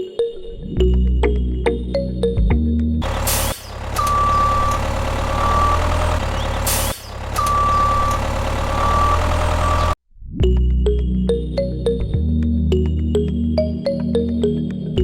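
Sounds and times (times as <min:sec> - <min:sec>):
heavy vehicle engine rumble: 0:03.0 - 0:10.0
high beep: 0:04.0 - 0:05.9, 0:07.4 - 0:10.0.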